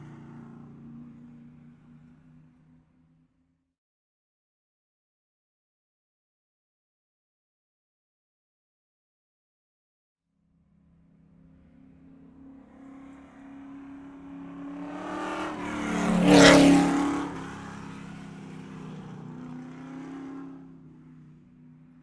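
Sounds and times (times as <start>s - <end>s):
car driving past: 11.1s - 22.0s.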